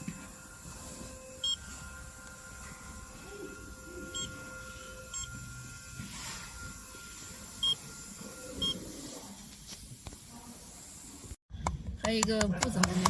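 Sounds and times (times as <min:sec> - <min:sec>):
machine humming: 0:00.0 - 0:09.2
touch screen beeps: 0:01.4 - 0:01.7, 0:04.1 - 0:04.4, 0:05.1 - 0:05.4, 0:07.6 - 0:07.8.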